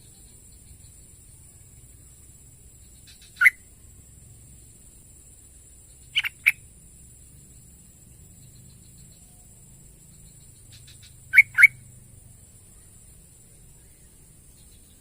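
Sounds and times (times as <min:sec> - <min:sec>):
bird calling in sharp bursts: 0:03.1 - 0:03.6, 0:06.1 - 0:06.6, 0:10.7 - 0:11.8.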